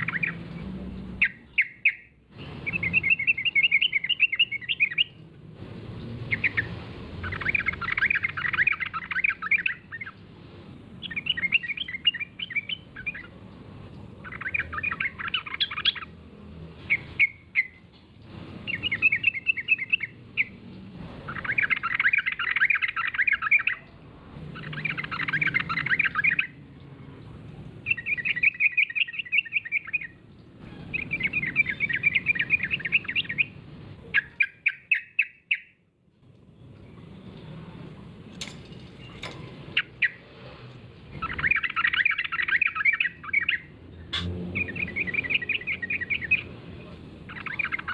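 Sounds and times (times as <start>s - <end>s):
bird chattering song: 0.0s - 5.2s, 6.2s - 10.2s, 11.0s - 13.4s, 14.0s - 16.2s, 16.8s - 17.8s, 18.6s - 20.6s, 21.2s - 26.6s, 27.8s - 35.8s, 39.0s - 40.2s, 41.1s - 47.9s.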